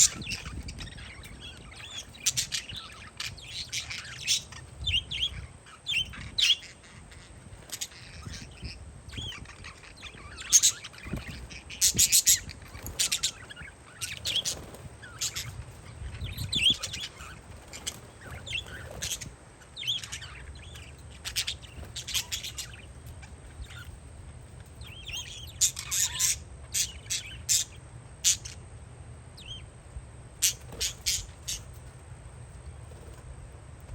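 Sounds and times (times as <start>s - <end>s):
wind rumble on microphone: 0.0s - 25.5s
parakeets chirping and screeching: 0.0s - 28.7s, 29.4s - 33.2s.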